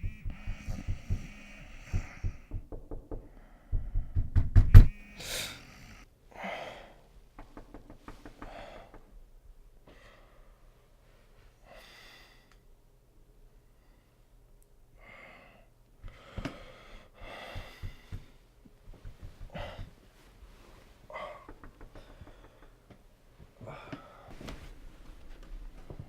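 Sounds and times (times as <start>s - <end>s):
knocks or thuds: 0.0s - 5.3s, 7.4s - 9.1s
short breathy sounds: 4.9s - 7.0s.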